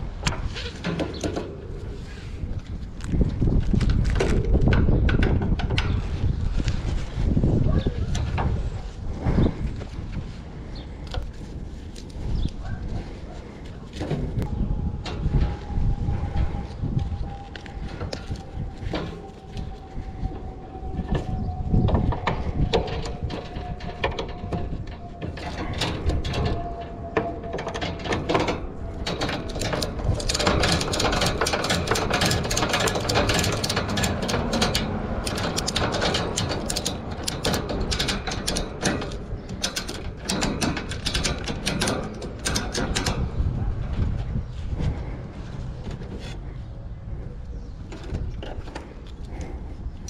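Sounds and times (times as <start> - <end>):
hard objects clicking and rattling: 21.9 - 43.3.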